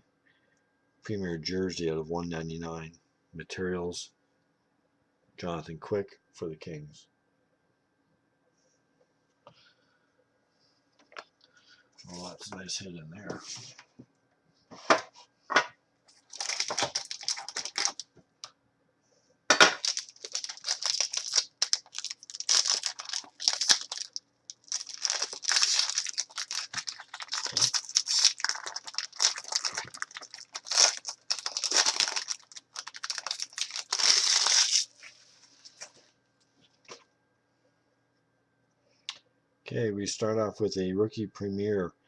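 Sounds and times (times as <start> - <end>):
plastic wrapping tearing and crinkling: 16.1 - 18.0, 19.6 - 35.8.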